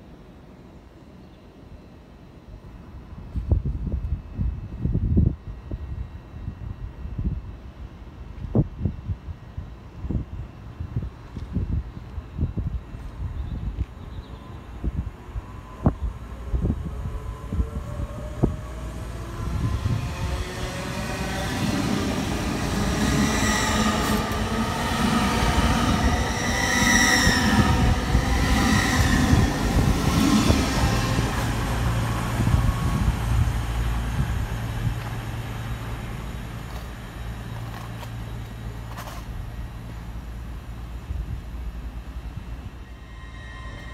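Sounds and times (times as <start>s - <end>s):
train low hum: 0.0s - 43.9s.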